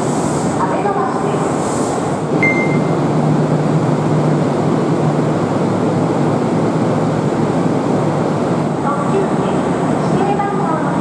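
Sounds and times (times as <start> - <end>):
train platform rumble and hum: 0.0 - 11.0
short high beep: 2.4 - 3.0.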